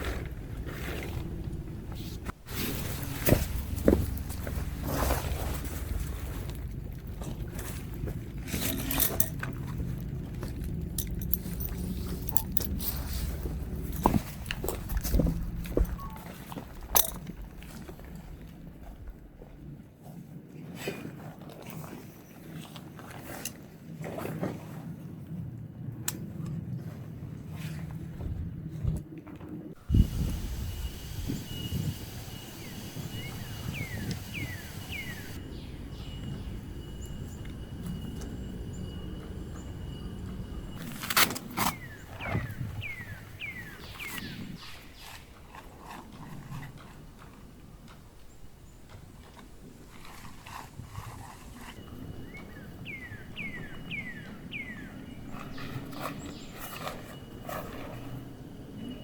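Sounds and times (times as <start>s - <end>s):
low wind rumble: 0.0s - 20.5s, 24.9s - 59.0s
outdoor hiss: 29.8s - 36.7s
steady thin high tone: 29.8s - 42.2s
bird whistles sliding downward: 30.0s - 40.8s.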